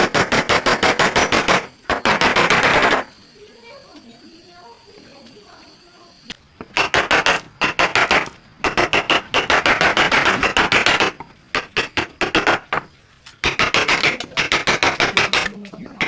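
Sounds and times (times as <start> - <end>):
hand tool knocking on wood: 0.0 - 3.1, 6.5 - 16.0.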